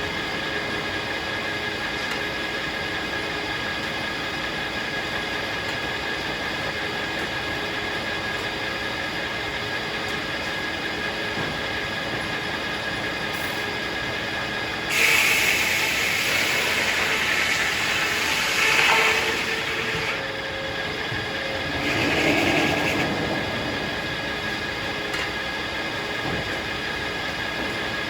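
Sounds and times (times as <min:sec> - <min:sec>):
sawmill running: 0:00.0 - 0:28.0
saw blade cutting log: 0:14.9 - 0:20.2.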